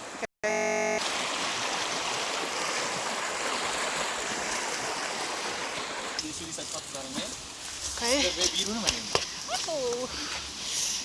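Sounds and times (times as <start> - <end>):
brief tone: 0.4 - 1.0
water rushing: 0.9 - 7.6.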